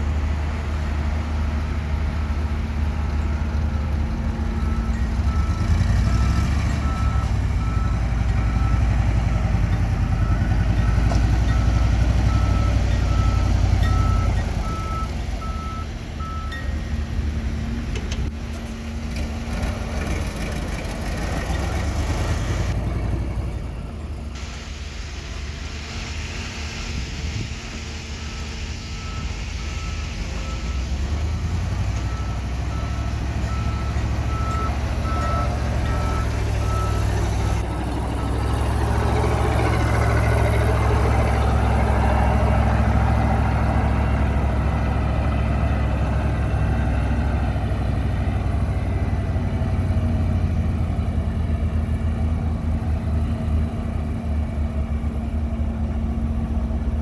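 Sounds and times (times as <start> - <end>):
heavy diesel machinery running: 0.0 - 57.0
reversing alarm beeping: 4.5 - 17.0, 28.9 - 37.6.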